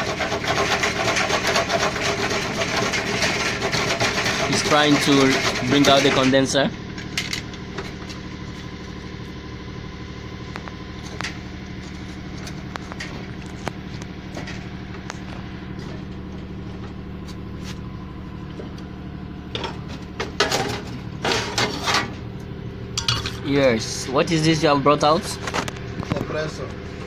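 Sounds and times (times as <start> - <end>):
engine-like hum: 0.0 - 27.0
metallic clatter: 19.5 - 22.2, 22.9 - 23.6.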